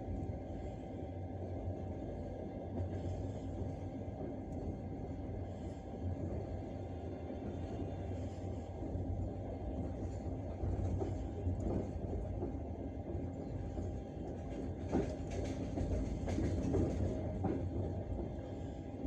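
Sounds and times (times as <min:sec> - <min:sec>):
low train rumble: 0:00.0 - 0:19.0
train wheels clattering over rail joints: 0:14.5 - 0:18.3.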